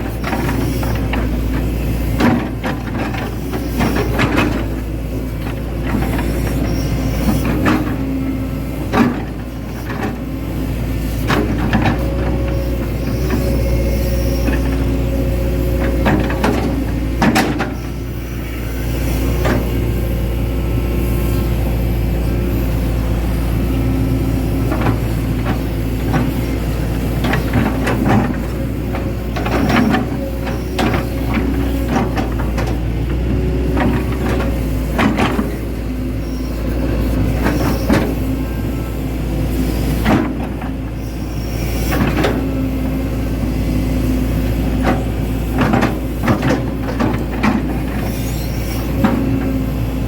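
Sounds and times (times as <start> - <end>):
hydraulic whine: 0.0 - 50.0.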